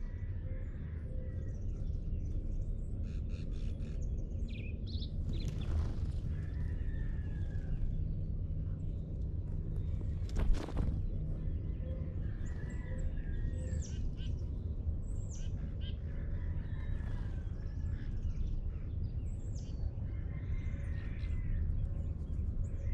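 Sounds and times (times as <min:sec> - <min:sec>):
birds singing and calling: 0:00.0 - 0:22.9
low background rumble: 0:00.0 - 0:22.9.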